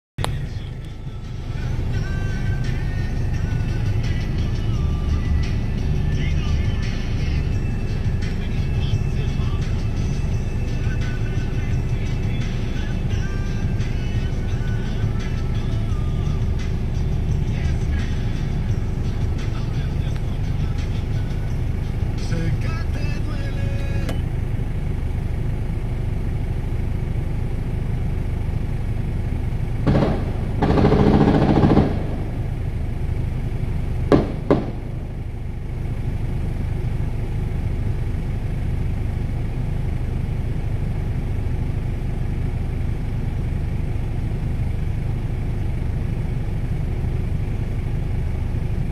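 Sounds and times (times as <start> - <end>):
car engine idling: 0.2 - 48.9
street traffic: 0.2 - 48.9
sharp bangs: 29.9 - 32.8, 34.1 - 35.4.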